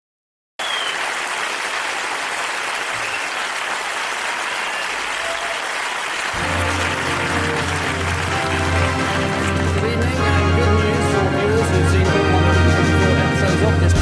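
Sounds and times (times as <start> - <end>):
studio audience applauding: 0.6 - 10.7
music: 6.4 - 14.0.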